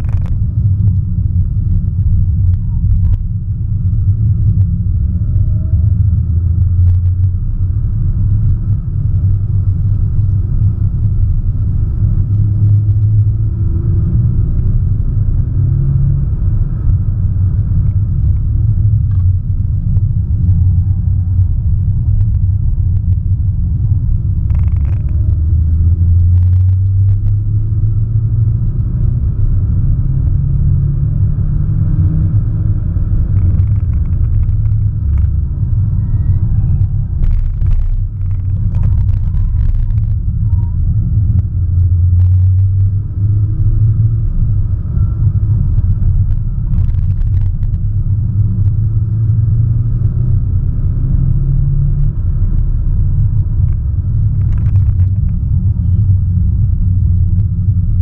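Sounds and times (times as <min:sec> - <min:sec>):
road rumble: 0:00.0 - 0:58.0.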